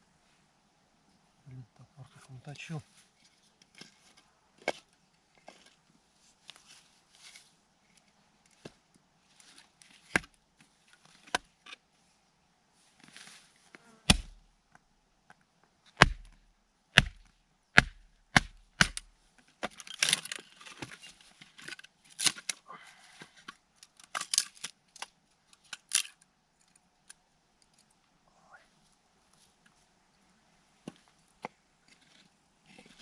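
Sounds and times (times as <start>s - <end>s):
axe chopping firewood: 10.1s - 10.4s, 14.1s - 14.4s, 16.0s - 16.4s, 17.0s - 19.8s.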